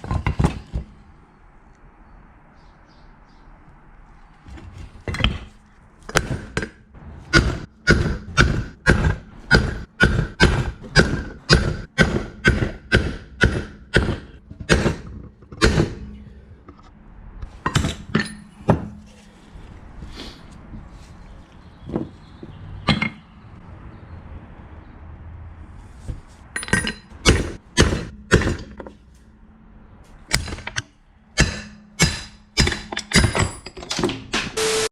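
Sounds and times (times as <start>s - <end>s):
hammer striking metal: 6.1s - 16.5s, 26.6s - 29.4s, 30.1s - 34.8s.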